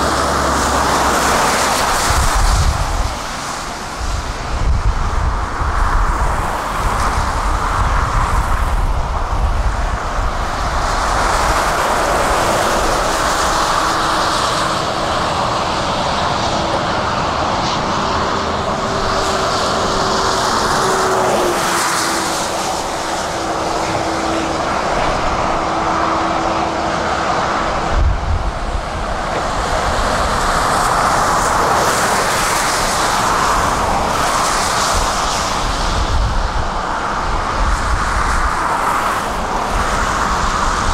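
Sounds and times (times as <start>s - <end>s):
steady whine: 8.1s - 34.4s.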